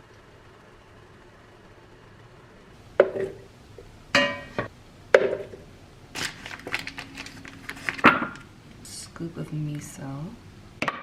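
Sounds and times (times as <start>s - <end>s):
glass or ceramic clink: 4.2s - 4.7s
small kitchenware clatters: 4.2s - 5.5s
kitchenware knocks: 4.2s - 5.6s.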